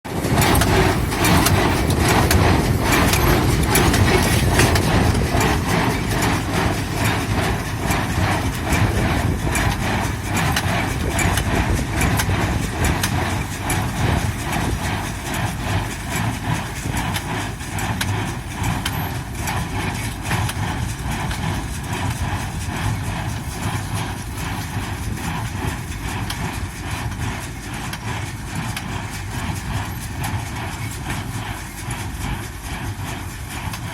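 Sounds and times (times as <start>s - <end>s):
engine droning: 0.1s - 27.7s.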